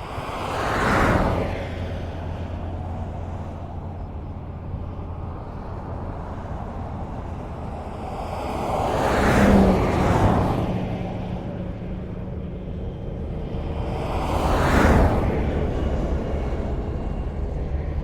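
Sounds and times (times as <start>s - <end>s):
distant highway traffic rumble: 0.0s - 18.0s
car passing close by: 0.2s - 3.8s, 5.5s - 12.0s, 13.7s - 16.8s.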